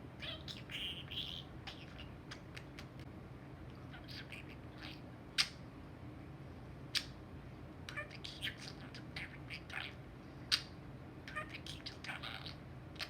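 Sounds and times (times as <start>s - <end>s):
budgerigar chattering: 0.2s - 3.0s.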